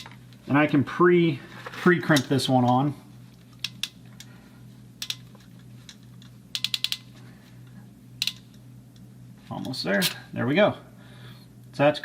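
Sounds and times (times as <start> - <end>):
steady low hum: 0.0 - 12.0
crimp tool ratchet clicking: 5.0 - 5.4, 6.6 - 7.1, 8.2 - 8.5.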